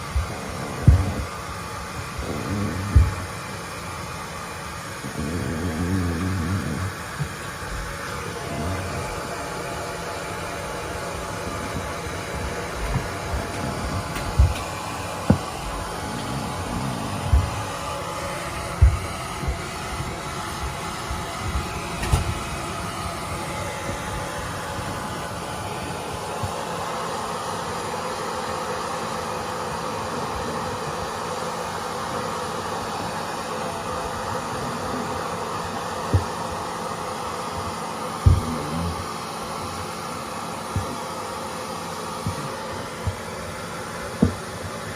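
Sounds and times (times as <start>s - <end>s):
hair dryer blowing: 0.0s - 44.9s
low thumps: 11.8s - 17.7s, 18.8s - 20.1s.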